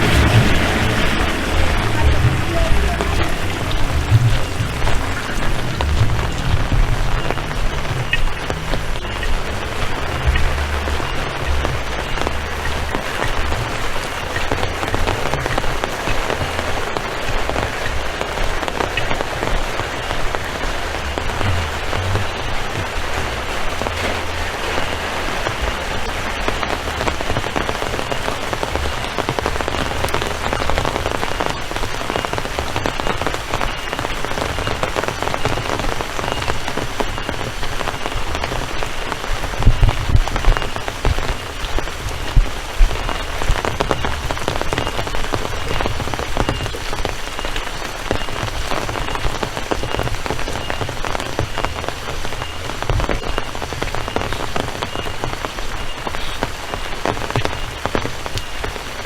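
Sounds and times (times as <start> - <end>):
low rumble: 0.0 - 31.6
heavy rain: 0.0 - 59.0.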